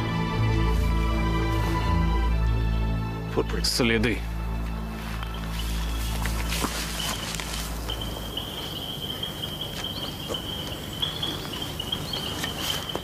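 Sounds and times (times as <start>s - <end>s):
low musical drone: 0.0s - 12.3s
rustles and footfalls: 4.7s - 13.0s
insect trilling: 5.3s - 13.0s.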